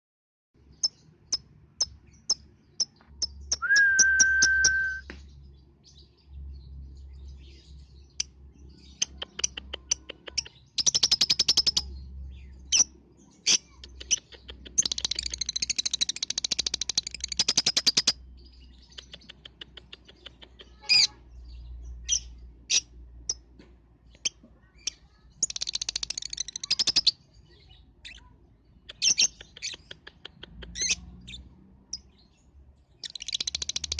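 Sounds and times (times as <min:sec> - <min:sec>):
lovebirds chirping and trilling: 0:00.6 - 0:33.9
whistle-like tone: 0:03.6 - 0:05.1.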